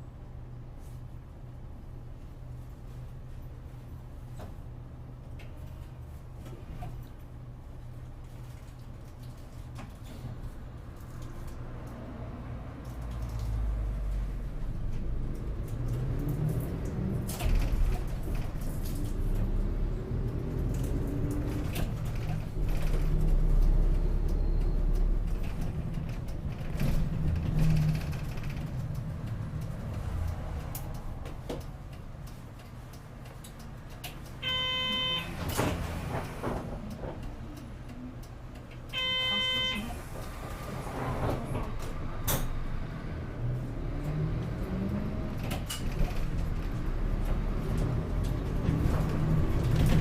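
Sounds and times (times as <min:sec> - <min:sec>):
bus engine and road rumble: 0:00.0 - 0:50.0
short electronic beeps: 0:34.4 - 0:35.3, 0:38.9 - 0:39.9.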